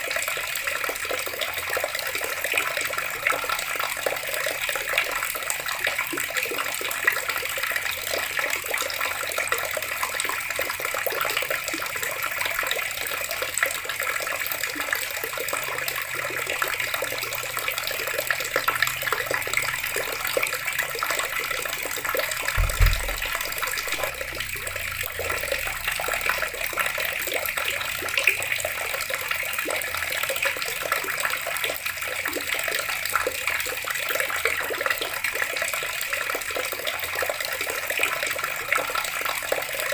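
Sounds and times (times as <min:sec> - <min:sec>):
water running from a tap: 0:00.0 - 0:39.9
low thump: 0:22.6 - 0:25.3.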